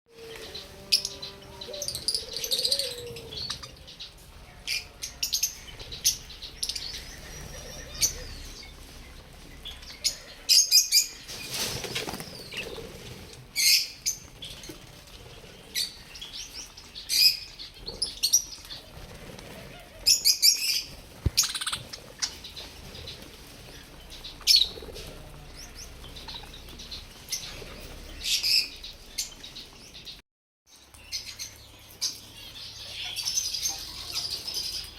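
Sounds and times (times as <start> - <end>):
budgerigars chirping: 1.9 - 11.2, 19.6 - 29.6
wings flapping: 10.9 - 28.6.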